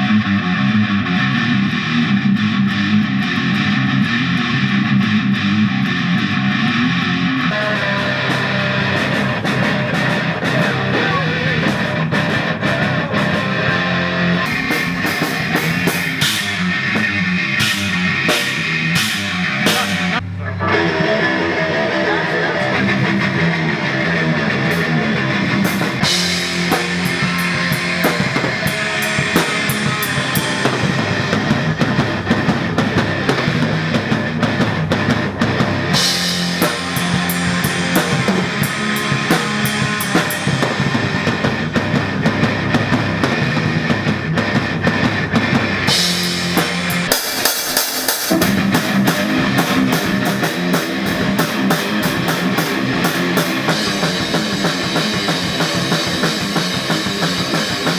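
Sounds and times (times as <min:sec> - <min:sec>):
rock band playing: 0:00.0 - 0:57.9
cymbal crash: 0:46.0 - 0:57.9.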